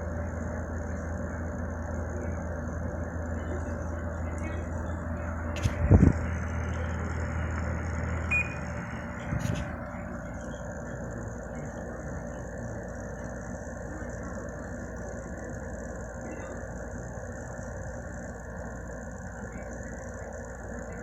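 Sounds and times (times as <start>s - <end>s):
low hum: 0.0s - 16.8s
air conditioner fan blowing: 0.0s - 21.0s
short beep: 8.3s - 8.7s.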